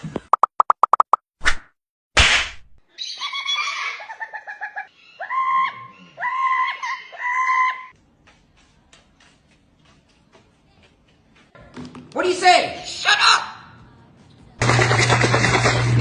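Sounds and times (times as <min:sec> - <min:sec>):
parrot calling: 0:02.9 - 0:07.9.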